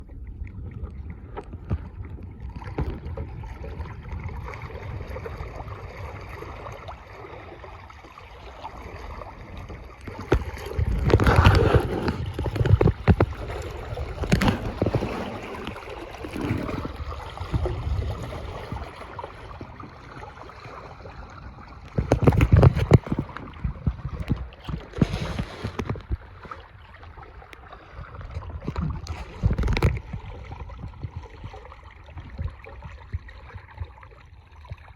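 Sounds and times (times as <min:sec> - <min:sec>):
wind on microphone: 0:00.0 - 0:07.8, 0:08.4 - 0:34.9
water splashing along kayak hull: 0:00.0 - 0:34.9.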